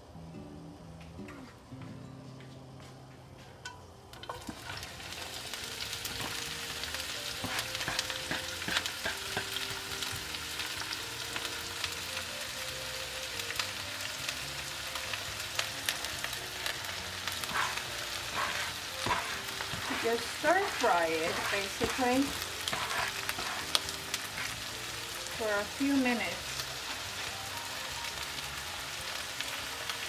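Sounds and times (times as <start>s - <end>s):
chives sizzling in hot oil: 4.1s - 30.0s
spatula stirring in pan: 6.0s - 10.2s, 16.6s - 27.4s.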